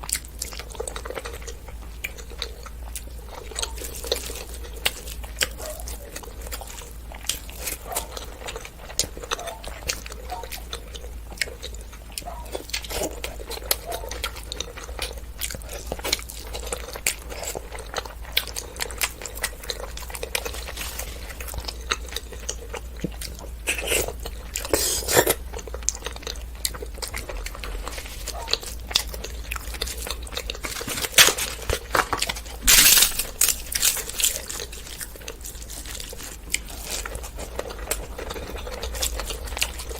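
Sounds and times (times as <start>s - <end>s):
chewing and mouth sounds: 0.0s - 39.9s.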